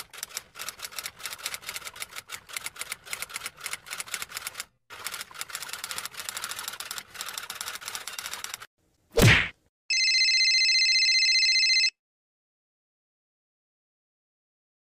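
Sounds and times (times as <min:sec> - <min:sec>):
typewriter typing: 0:00.0 - 0:08.7.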